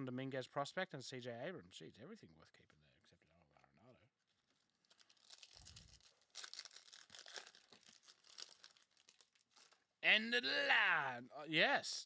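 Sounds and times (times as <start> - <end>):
foil wrapper tearing and crinkling: 4.7 - 9.9.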